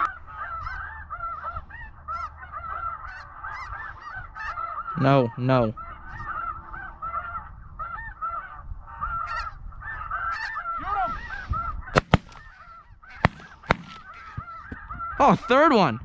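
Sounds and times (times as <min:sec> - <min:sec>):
geese honking: 0:00.0 - 0:04.9, 0:12.0 - 0:12.5
shotgun shots: 0:12.0 - 0:12.6, 0:13.2 - 0:14.2.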